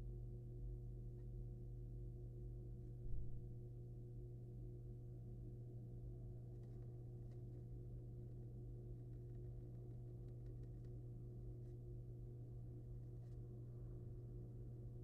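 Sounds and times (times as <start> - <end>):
low electrical hum: 0.0 - 15.0
faint ticks and scratches: 0.8 - 1.9, 5.4 - 15.0.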